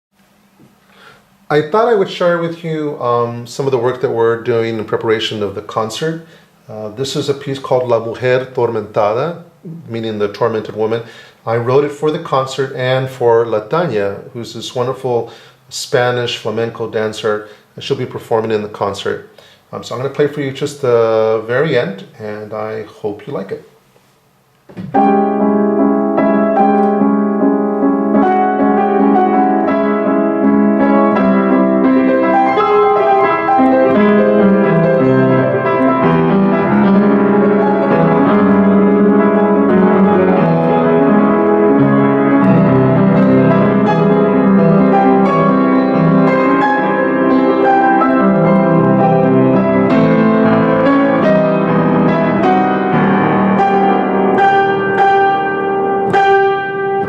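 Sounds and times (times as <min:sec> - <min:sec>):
solo piano chords: 0:24.9 - 0:57.0.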